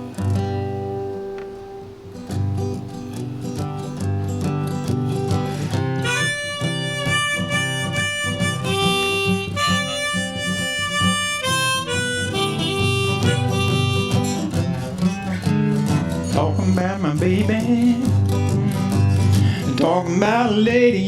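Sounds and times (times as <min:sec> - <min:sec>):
strummed acoustic guitar: 0:00.0 - 0:21.0
harmonica melody: 0:05.3 - 0:16.3.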